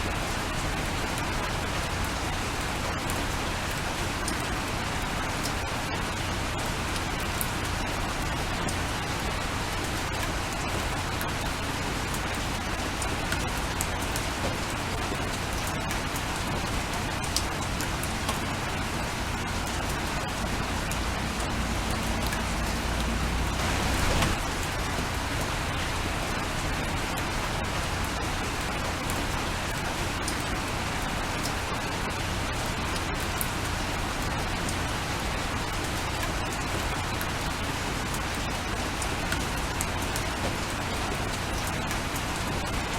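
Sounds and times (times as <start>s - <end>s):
steady rain falling: 0.0s - 42.9s
raindrops ticking: 0.2s - 42.9s
low rumble: 21.2s - 25.0s.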